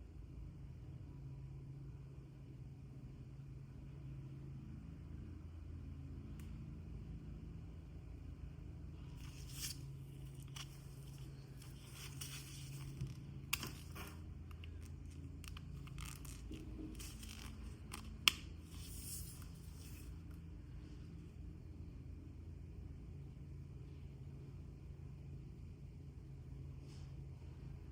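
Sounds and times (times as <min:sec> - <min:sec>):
steady low hum: 0:00.0 - 0:27.9
packaging rustling and tearing: 0:09.2 - 0:20.1.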